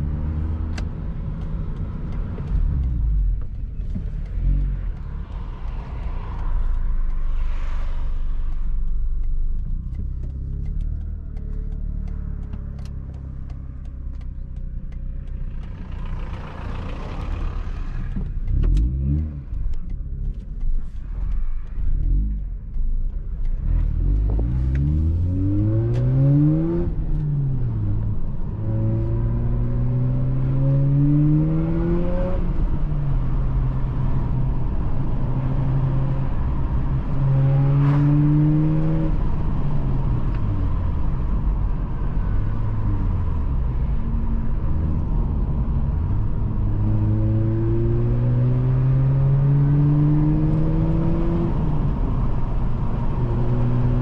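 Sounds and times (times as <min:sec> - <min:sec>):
rotary engine revving: 0:43.0 - 0:54.0.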